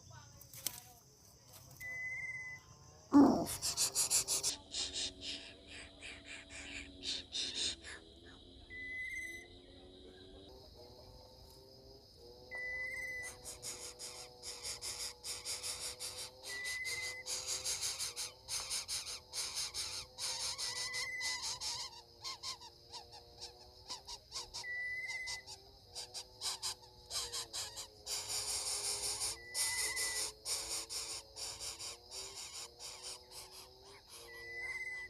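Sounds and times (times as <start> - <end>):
crackling insect chorus: 0.0 - 35.0.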